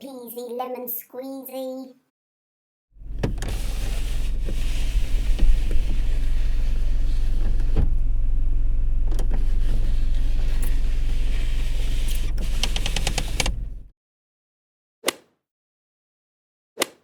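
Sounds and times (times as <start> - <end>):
car window cranked by hand: 3.0 - 13.9
steady low hum: 3.0 - 13.9
quick clicks: 9.0 - 13.9.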